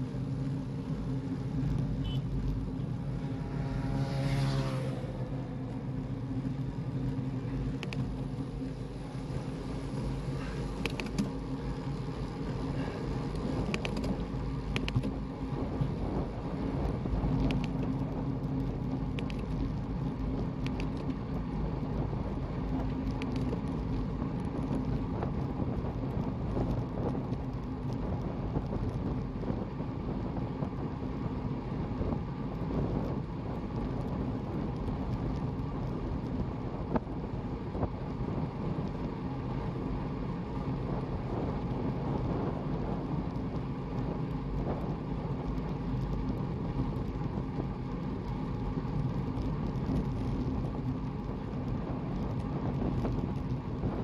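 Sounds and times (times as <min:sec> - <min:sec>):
road rumble: 0:00.0 - 0:54.0
small ticks: 0:07.7 - 0:08.2, 0:10.4 - 0:11.3, 0:12.8 - 0:15.1, 0:17.4 - 0:21.2, 0:22.8 - 0:24.9
wind on microphone: 0:39.8 - 0:48.3, 0:48.9 - 0:54.0.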